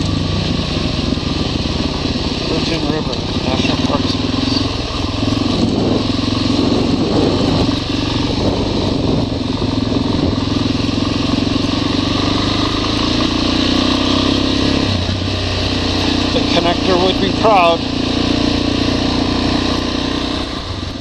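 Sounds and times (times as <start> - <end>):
motorcycle engine running: 0.0 - 21.0
wind rush over microphone: 1.0 - 13.1.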